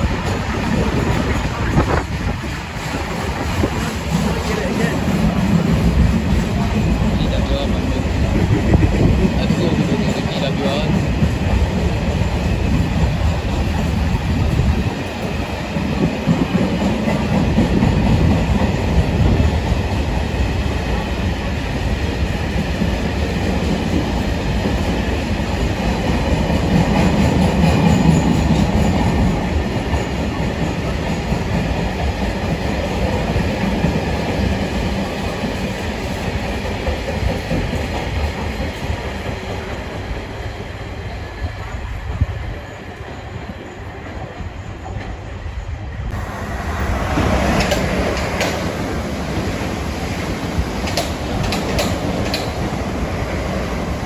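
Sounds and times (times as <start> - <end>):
freight train rumble: 0.0 - 54.0
wheels clacking over rail joints: 46.9 - 53.8.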